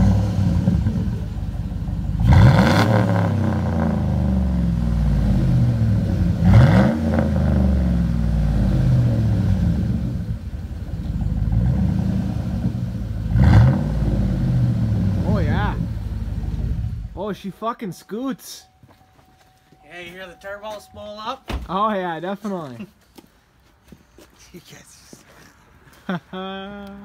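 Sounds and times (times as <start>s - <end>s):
truck engine revving: 0.0s - 17.2s.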